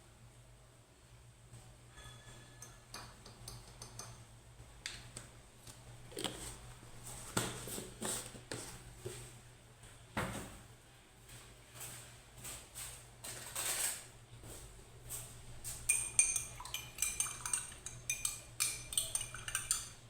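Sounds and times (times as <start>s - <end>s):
dishes and cutlery clinking: 1.9s - 4.2s, 15.8s - 20.0s.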